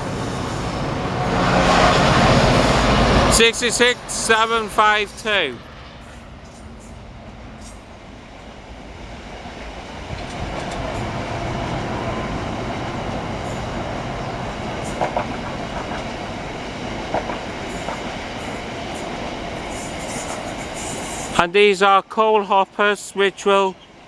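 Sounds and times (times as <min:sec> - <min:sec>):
freight train rumbling past: 0:00.0 - 0:24.0
wheels clacking over rail joints: 0:06.4 - 0:21.1.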